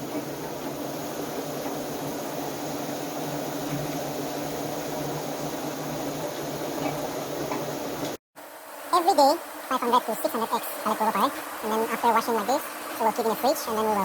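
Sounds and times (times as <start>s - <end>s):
brushes and water hissing: 0.0s - 8.2s
washing machine hum: 0.0s - 14.0s.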